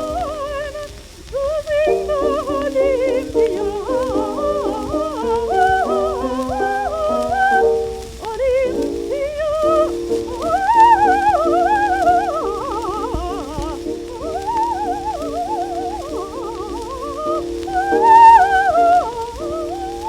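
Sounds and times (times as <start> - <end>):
held accompaniment: 0.0 - 20.0
soprano singing an aria: 0.0 - 20.0.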